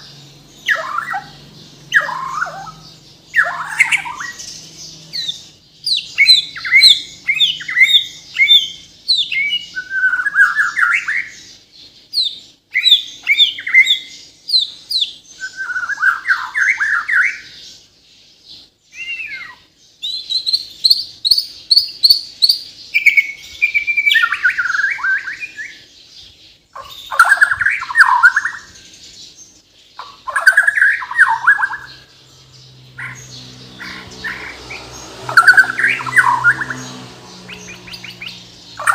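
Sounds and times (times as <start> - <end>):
songbird whistles and trills: 0.0 - 17.6, 18.9 - 29.1, 30.0 - 32.2.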